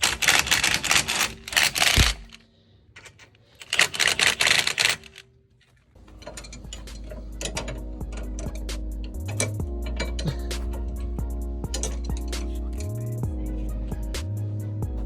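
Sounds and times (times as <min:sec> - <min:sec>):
rapid mechanical clattering: 0:00.0 - 0:02.4, 0:03.0 - 0:05.2, 0:06.0 - 0:14.2
background music: 0:06.0 - 0:15.0.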